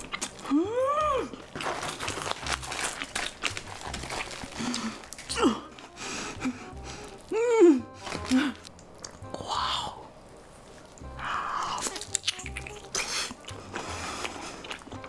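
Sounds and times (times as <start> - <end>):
fried batter crunching: 0.0 - 5.3, 6.6 - 7.4, 11.7 - 15.0
wet chewing: 0.0 - 9.4, 10.4 - 15.0
wordless vocal ooh: 0.4 - 1.4, 4.6 - 5.8, 6.4 - 8.7.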